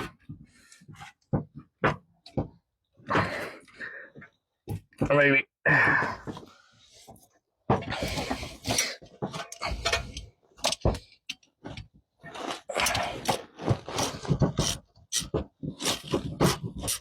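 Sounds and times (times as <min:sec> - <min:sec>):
hand tools scraping and clicking: 0:07.9 - 0:11.9.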